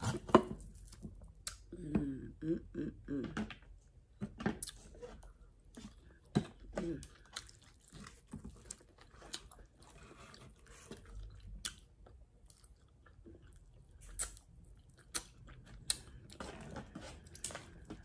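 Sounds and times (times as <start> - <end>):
person chewing: 4.6 - 18.0.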